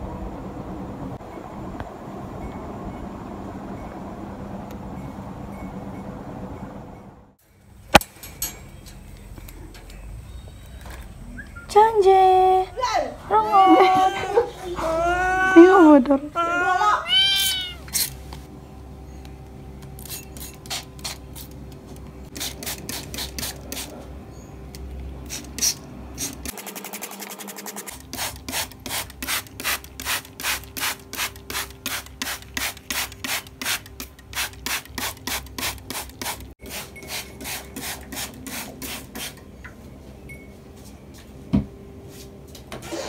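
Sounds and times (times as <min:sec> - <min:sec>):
spray bottle squirts hissing: 0:25.3 - 0:39.4.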